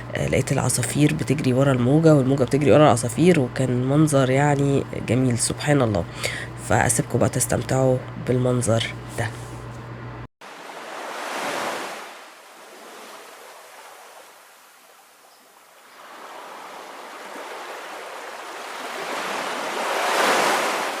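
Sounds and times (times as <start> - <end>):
ocean surf on sandy beach: 10.4 - 21.0.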